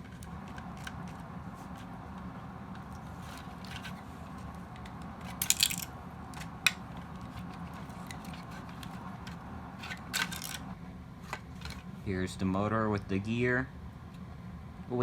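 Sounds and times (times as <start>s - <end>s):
steady low hum: 0.0s - 15.0s
plastic parts clicking and clattering: 3.2s - 4.0s, 4.7s - 10.7s, 11.3s - 11.8s.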